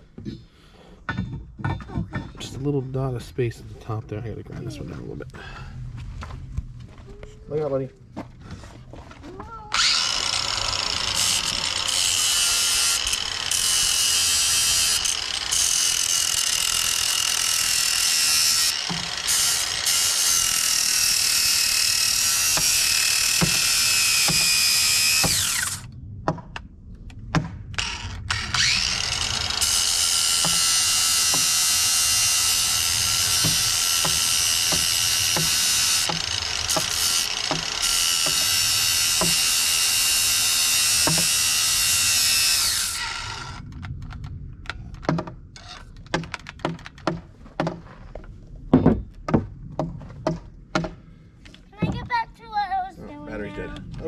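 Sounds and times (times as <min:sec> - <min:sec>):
angle grinder grinding steel: 0:09.7 - 0:25.9, 0:27.8 - 0:43.6
sharp knocks: 0:18.8 - 0:19.2, 0:23.4 - 0:24.6, 0:27.3 - 0:27.6, 0:30.4 - 0:31.6, 0:33.3 - 0:38.6, 0:39.2 - 0:39.5, 0:41.0 - 0:41.4, 0:45.0 - 0:45.4, 0:46.1 - 0:47.8, 0:48.7 - 0:51.0.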